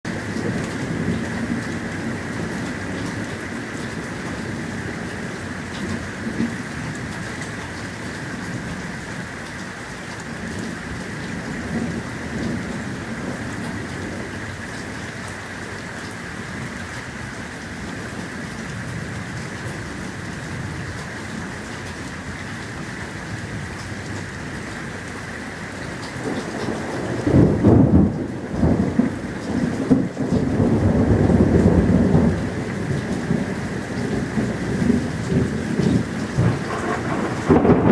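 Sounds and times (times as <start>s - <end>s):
rain hissing: 0.1s - 37.9s
thunderclap and rumbling thunder: 10.2s - 15.1s, 25.8s - 37.9s.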